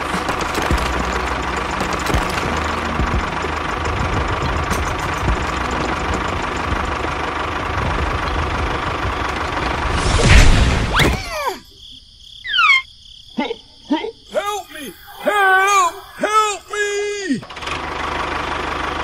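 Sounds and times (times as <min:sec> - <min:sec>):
tractor engine running: 0:00.0 - 0:10.9, 0:14.4 - 0:19.0
loud crash: 0:09.4 - 0:11.3.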